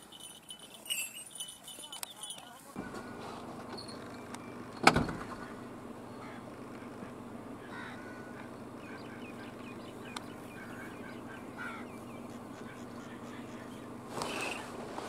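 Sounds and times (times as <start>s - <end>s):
steady low hum: 2.8s - 15.0s
faint short bird calls: 7.6s - 14.7s.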